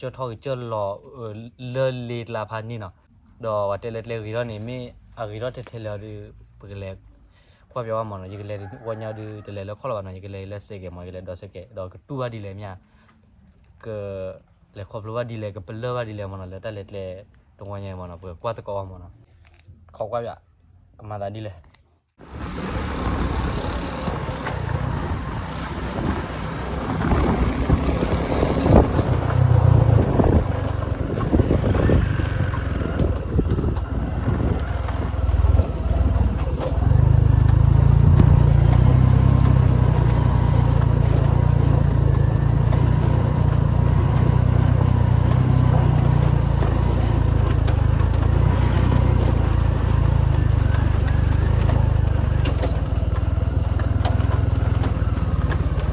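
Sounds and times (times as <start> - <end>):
motorbike engine rumbling: 22.2 - 55.9.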